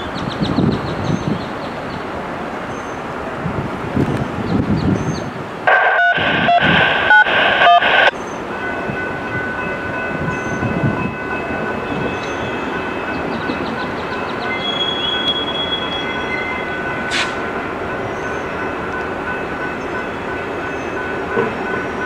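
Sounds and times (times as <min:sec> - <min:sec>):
diesel train rumbling: 0:00.0 - 0:22.0
hissing noise with tones: 0:05.7 - 0:08.1.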